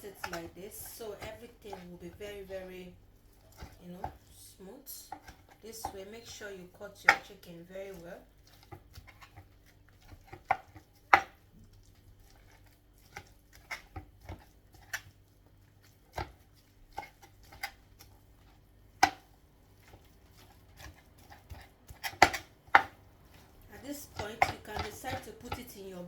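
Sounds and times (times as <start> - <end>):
knife chopping on board: 0.2 - 2.2, 8.4 - 11.4, 19.0 - 23.0, 23.8 - 25.7.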